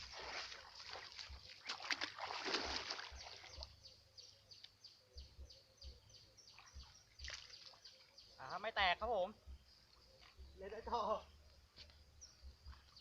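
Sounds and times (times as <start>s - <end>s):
water splashing and sloshing: 0.0s - 3.8s, 6.4s - 8.2s
bird chirping: 2.8s - 13.0s.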